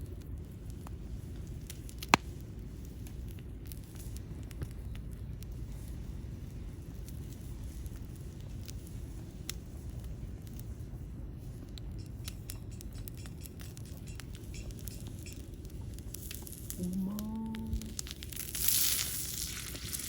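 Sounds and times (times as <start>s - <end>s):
low rumble: 0.0s - 20.0s
wood fire crackling: 0.0s - 20.0s
sharp pops: 2.0s - 2.4s, 11.8s - 20.0s.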